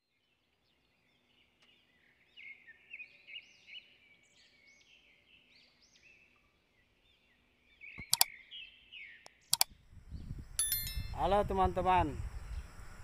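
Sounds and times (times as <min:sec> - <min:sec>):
small birds chirping: 0:00.0 - 0:13.0
sharp double click: 0:08.0 - 0:08.3, 0:09.5 - 0:09.7.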